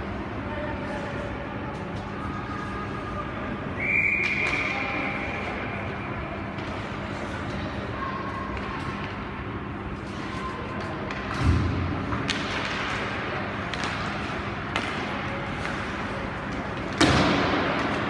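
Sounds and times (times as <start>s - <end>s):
arena hall noise: 0.0s - 18.0s
hockey sticks and puck clacking: 4.1s - 5.6s, 6.5s - 18.0s.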